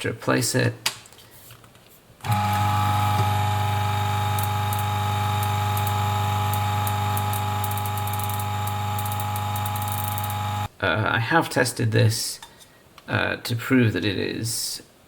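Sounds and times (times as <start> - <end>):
coffee grinder motor humming: 2.2 - 10.7.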